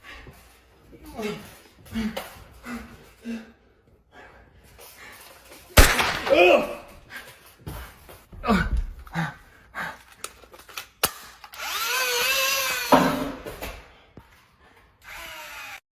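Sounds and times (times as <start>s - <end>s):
small electric motor whirring: 11.6s - 12.9s, 15.1s - 15.8s.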